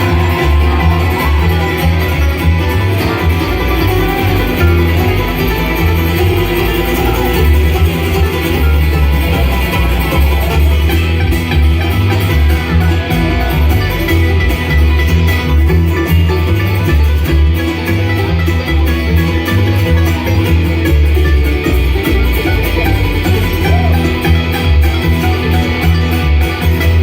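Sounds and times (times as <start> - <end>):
acoustic guitar picking: 0.0 - 27.0
banjo: 0.0 - 27.0
stepping bass line: 0.0 - 27.0.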